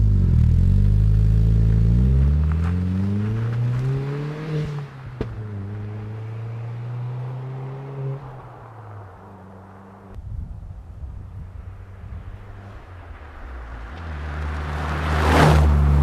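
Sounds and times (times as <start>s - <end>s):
low rumble: 0.0s - 3.5s
car engine accelerating: 0.0s - 10.2s, 11.5s - 16.0s.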